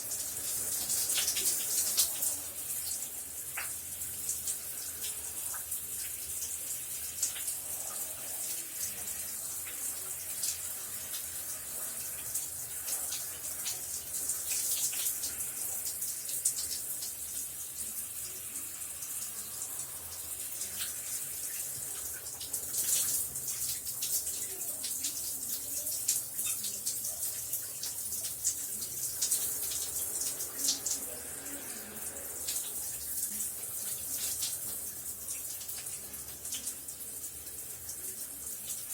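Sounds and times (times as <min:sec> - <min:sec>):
water splattering on floor: 0:00.6 - 0:06.2, 0:32.5 - 0:38.9.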